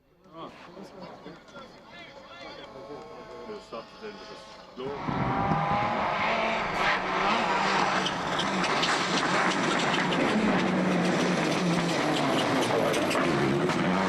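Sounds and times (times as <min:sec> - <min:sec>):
car engine revving high: 0:04.8 - 0:14.0
clatter of sharp ticks: 0:07.6 - 0:14.0.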